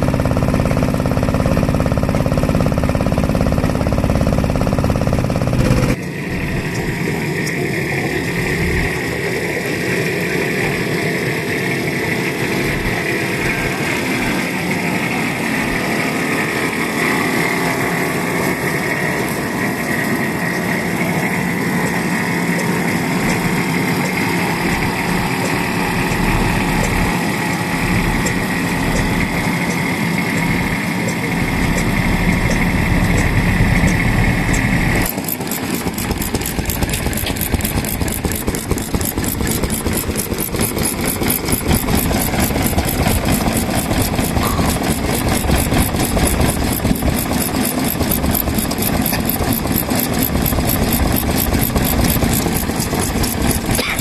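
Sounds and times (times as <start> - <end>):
engines clattering: 0.0 - 54.0
high whine: 0.0 - 54.0
fast sharp ticking: 11.5 - 54.0.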